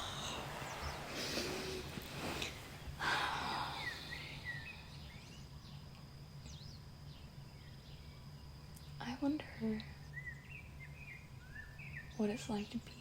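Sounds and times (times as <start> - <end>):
breathy rush of noise: 0.0 - 5.1
songbirds chirping and whistling: 0.0 - 13.0
steady low hum: 0.0 - 13.0.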